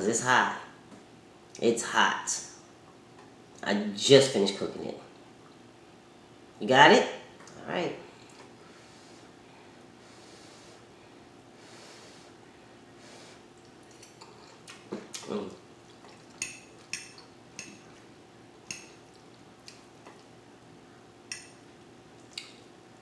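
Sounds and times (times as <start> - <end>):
faint steady hum: 0.0 - 23.0
utensil clinking on plate: 16.4 - 17.9.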